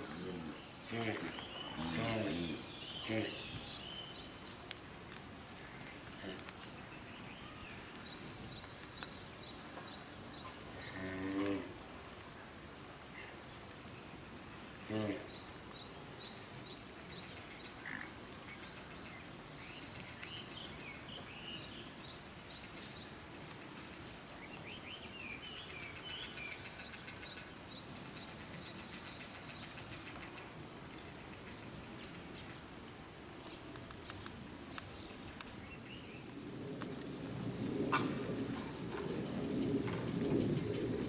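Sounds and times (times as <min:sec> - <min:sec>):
faint background noise: 0:00.0 - 0:41.0.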